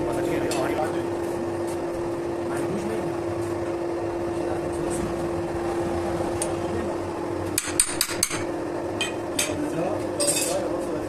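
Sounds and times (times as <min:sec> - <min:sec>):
machine hum: 0:00.0 - 0:10.2
metal-on-metal knocks: 0:07.5 - 0:09.6.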